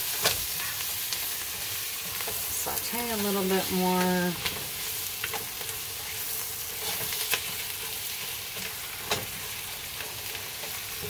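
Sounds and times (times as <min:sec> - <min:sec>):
beef and onions sizzling: 0:00.0 - 0:11.0
spatula stirring and scraping: 0:04.0 - 0:11.0.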